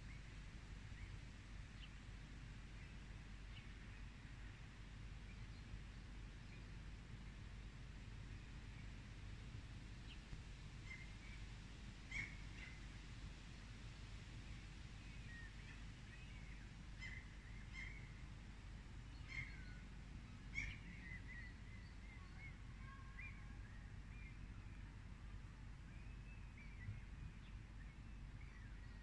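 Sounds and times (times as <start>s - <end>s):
low background noise: 0.0s - 29.0s
small birds chirping: 19.0s - 25.0s.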